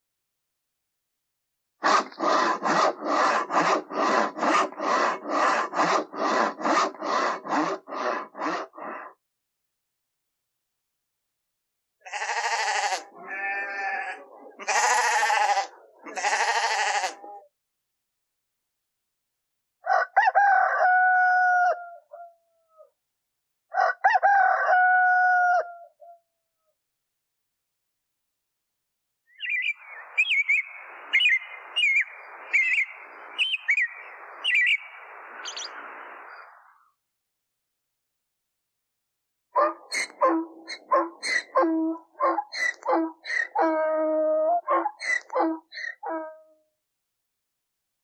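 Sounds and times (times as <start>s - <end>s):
livestock bleating: 12.0s - 17.3s
small bird chirping: 29.3s - 36.4s.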